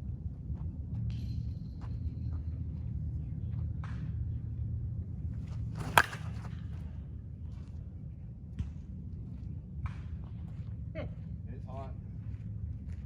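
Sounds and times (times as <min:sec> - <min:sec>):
bat cracking a softball: 0:05.6 - 0:06.7.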